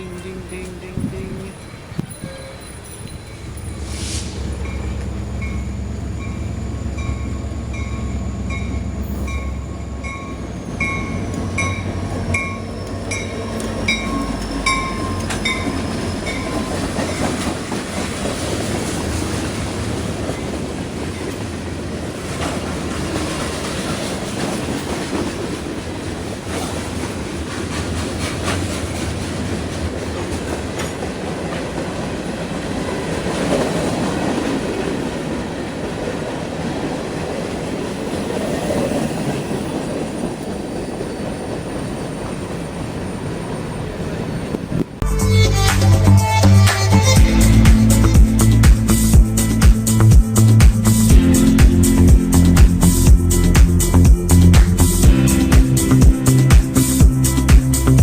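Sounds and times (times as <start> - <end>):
train bell ringing: 0.0 - 21.8
train wheels clacking on rail joints: 0.0 - 42.4
locomotive rumble: 0.0 - 58.0.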